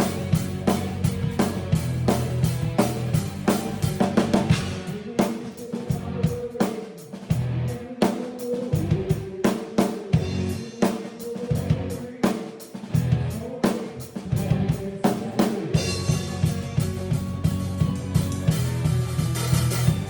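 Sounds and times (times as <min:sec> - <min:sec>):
drum kit played with sticks: 0:00.0 - 0:20.0
recorded band track: 0:00.0 - 0:20.0.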